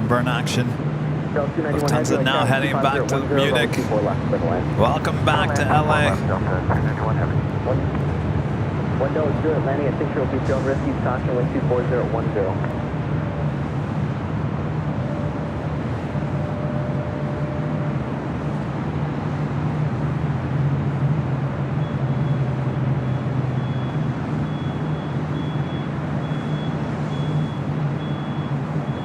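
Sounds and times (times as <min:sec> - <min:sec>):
jet engines rumbling: 0:00.0 - 0:17.3.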